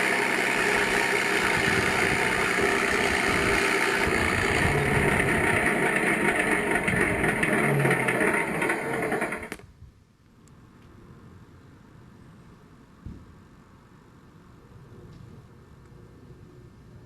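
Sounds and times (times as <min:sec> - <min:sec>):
simulated aircraft engine sound: 0:00.0 - 0:09.6.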